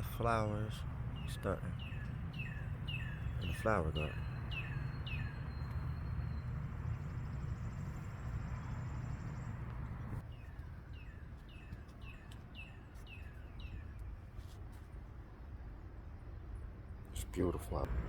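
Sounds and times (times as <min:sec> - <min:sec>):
bird chirping: 0:00.0 - 0:14.2.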